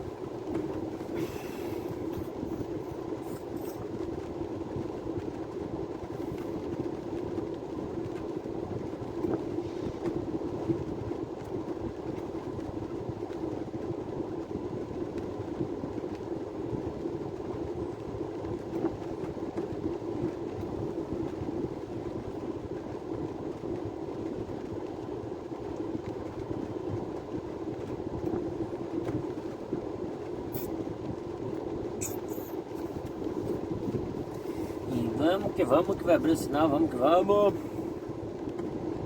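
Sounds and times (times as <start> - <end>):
engine and road drone: 0.0 - 10.6, 28.3 - 39.0.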